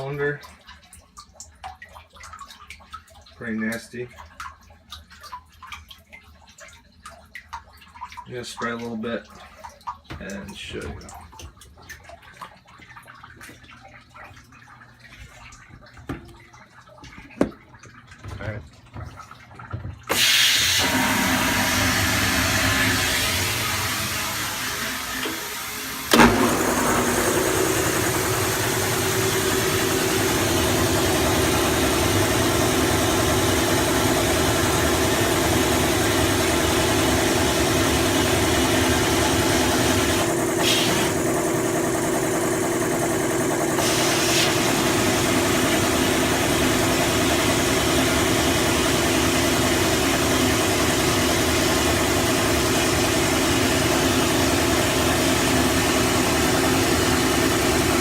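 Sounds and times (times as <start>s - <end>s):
machine hum: 20.1s - 58.0s.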